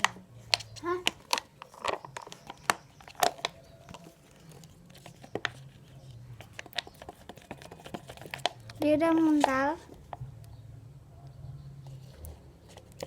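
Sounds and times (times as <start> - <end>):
plastic spoon tapping plastic cup: 0.0 - 4.1, 6.4 - 10.2
sticky crinkly stirring strokes: 0.0 - 10.2.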